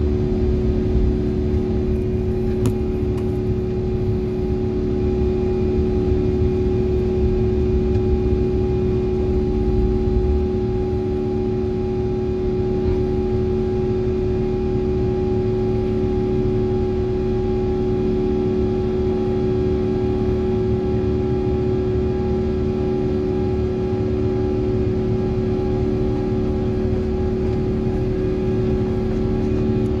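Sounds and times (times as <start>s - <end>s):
aircraft engines rumbling: 0.0s - 12.0s, 23.4s - 30.0s
constant cabin hums: 0.0s - 30.0s.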